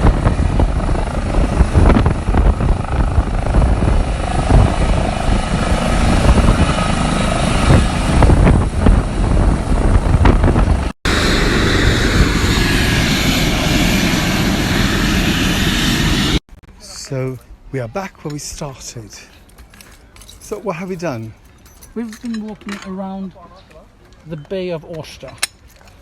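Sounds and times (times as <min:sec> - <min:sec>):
helicopter rotor and turbine: 0:00.0 - 0:16.4.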